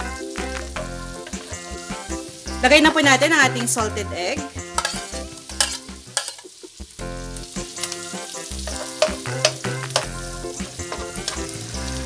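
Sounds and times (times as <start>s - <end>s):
egg sizzling in a wok: 0.2s - 3.8s, 4.5s - 12.0s
spatula clicking against pan: 4.8s - 6.5s, 8.7s - 10.2s.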